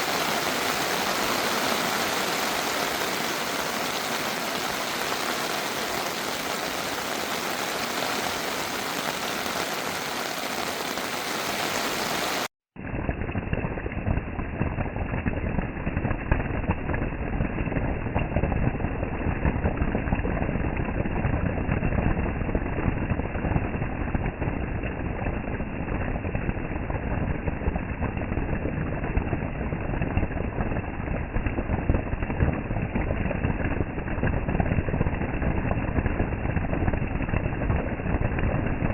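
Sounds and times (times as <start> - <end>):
heavy rain hissing: 0.0 - 12.5
rain pattering on surface: 0.0 - 38.9.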